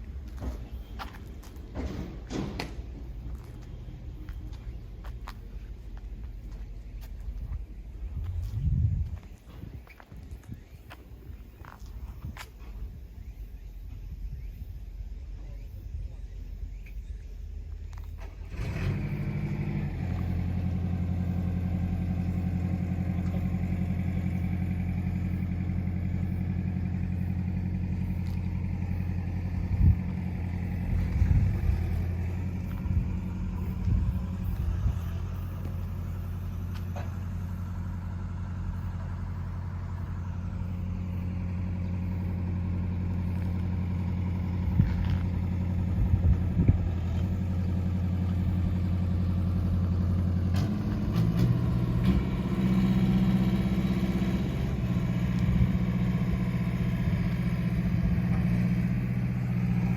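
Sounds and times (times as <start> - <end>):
diesel engine idling: 0.0 - 59.9
knocks and clunks: 0.2 - 3.6.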